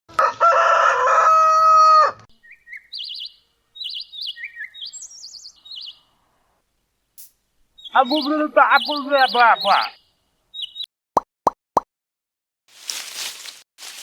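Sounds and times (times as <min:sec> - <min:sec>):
rooster crowing: 0:00.1 - 0:02.3
high-pitched bird chirps: 0:02.4 - 0:06.1, 0:07.8 - 0:10.9.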